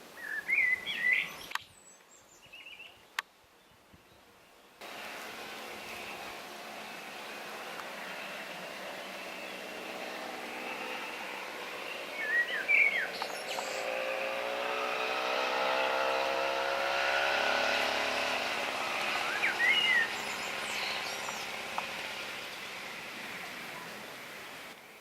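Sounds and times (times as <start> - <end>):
bird chirping: 0.2 - 4.7, 5.6 - 25.0
passing engine: 4.8 - 24.8.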